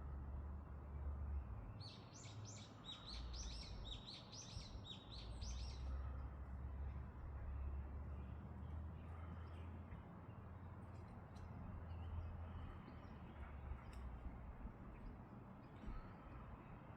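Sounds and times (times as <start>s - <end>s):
songbird singing: 1.2s - 6.3s, 7.4s - 14.0s.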